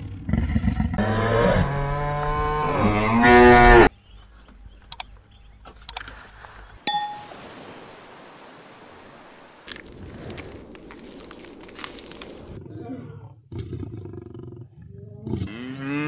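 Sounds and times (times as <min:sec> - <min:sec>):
cow mooing: 0:01.0 - 0:03.9
short bell ding: 0:06.9 - 0:07.4.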